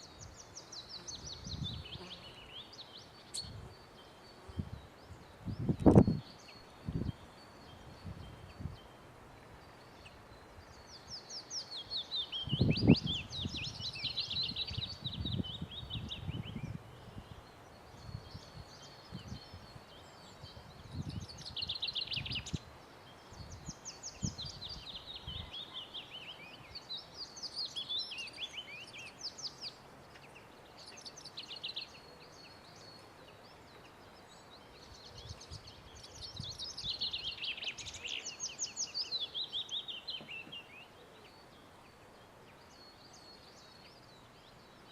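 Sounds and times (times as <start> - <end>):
songbirds trilling: 0.0 - 44.9.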